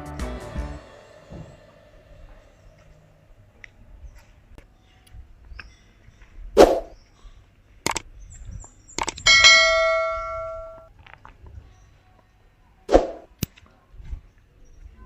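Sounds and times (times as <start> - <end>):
metallic bell-like ring: 9.3 - 10.9.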